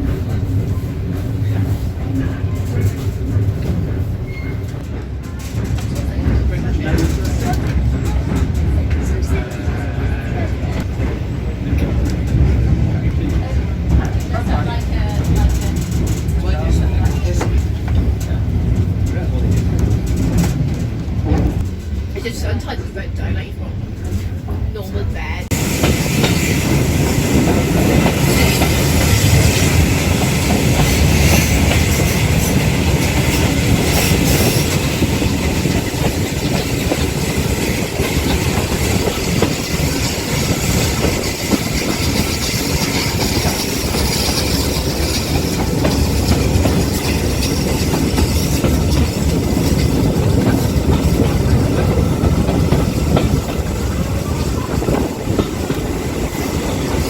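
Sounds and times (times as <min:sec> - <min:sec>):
train carriage rumbling: 0:00.0 - 0:57.0
wheels clattering over rail joints: 0:25.5 - 0:57.0.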